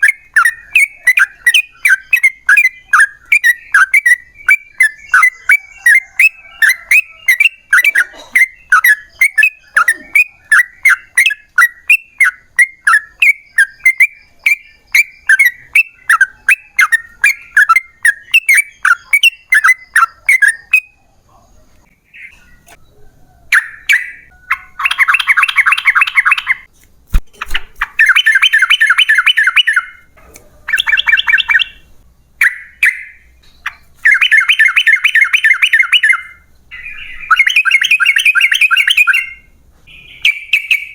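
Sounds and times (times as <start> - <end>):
bird singing bubbly notes: 0.0 - 21.0, 23.5 - 26.7, 27.4 - 30.1, 30.7 - 40.9
sharp click: 26.8 - 28.0.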